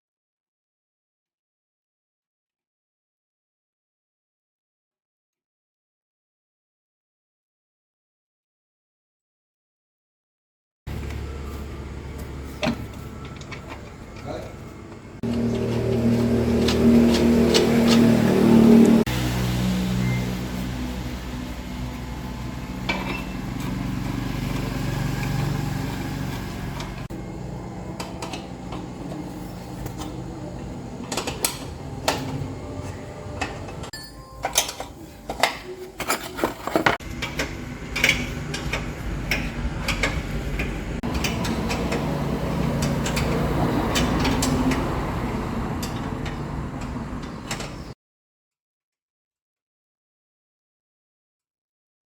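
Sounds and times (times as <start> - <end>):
truck engine running: 10.9 - 33.9, 37.0 - 47.9.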